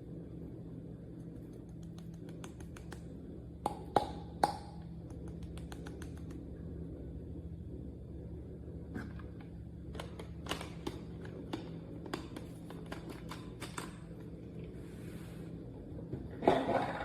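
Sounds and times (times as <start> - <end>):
steady low hum: 0.0 - 17.0
light irregular clicks and taps: 1.2 - 3.1.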